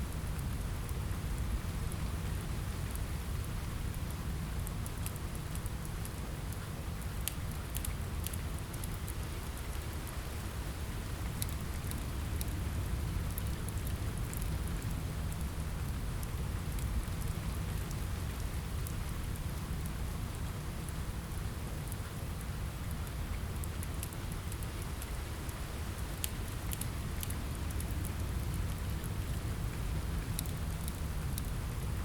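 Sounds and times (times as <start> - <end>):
rain on a window: 0.0 - 32.0
wood fire crackling: 0.1 - 32.0.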